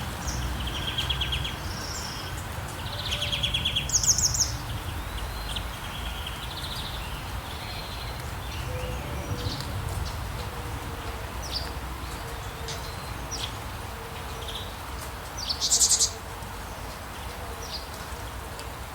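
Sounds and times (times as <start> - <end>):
rain hissing: 0.0 - 13.9
wild birds chirping: 0.0 - 16.2.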